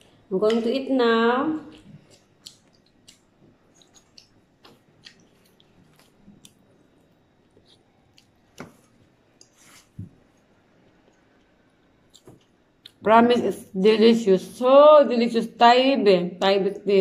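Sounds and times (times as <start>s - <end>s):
person chewing: 1.6s - 13.0s.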